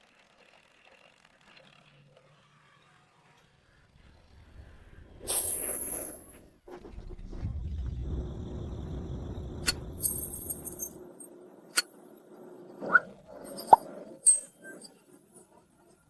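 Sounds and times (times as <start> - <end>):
low rumble: 4.1 - 13.8
sharp clicks and clinks: 9.7 - 11.0.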